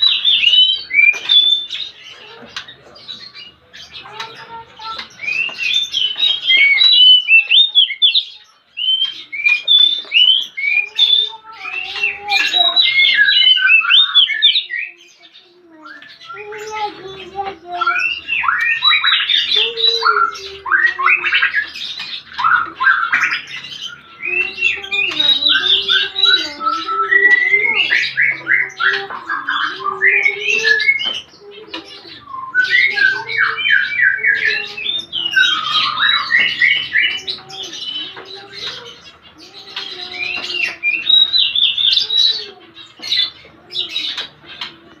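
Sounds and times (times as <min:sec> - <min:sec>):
sparrows chirping: 0:00.0 - 0:45.0.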